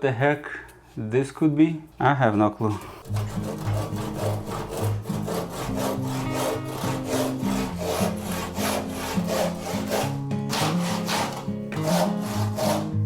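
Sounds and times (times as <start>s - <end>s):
background music: 3.0s - 13.0s
hand saw cutting wood: 3.0s - 13.0s.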